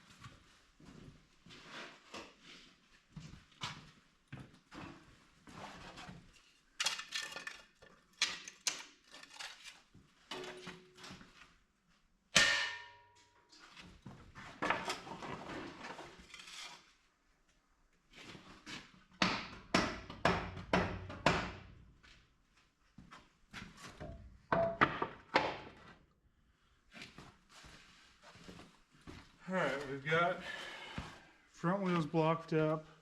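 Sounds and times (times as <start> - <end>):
blocks knocking and clattering: 24.0 - 25.8.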